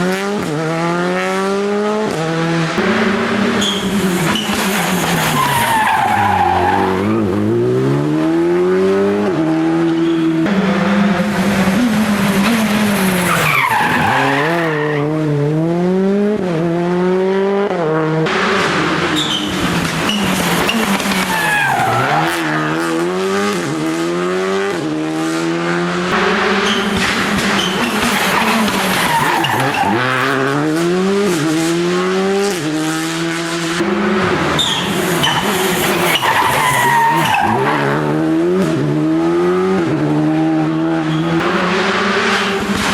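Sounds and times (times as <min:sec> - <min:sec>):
car engine revving: 0:00.0 - 0:42.9
tyres squealing: 0:03.6 - 0:07.2, 0:13.2 - 0:15.0, 0:34.6 - 0:37.6.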